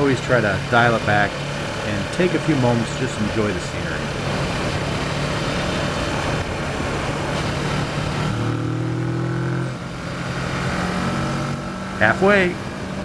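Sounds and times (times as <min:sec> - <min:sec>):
motorcycle engine running: 0:00.0 - 0:13.0
road noise: 0:00.0 - 0:13.0
wind noise: 0:03.9 - 0:11.8.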